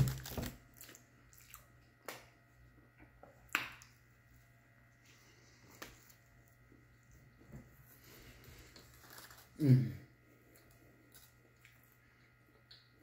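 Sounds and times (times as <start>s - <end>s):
low steady hum: 0.0s - 13.0s
chewing with wet mouth smacks: 0.7s - 2.1s.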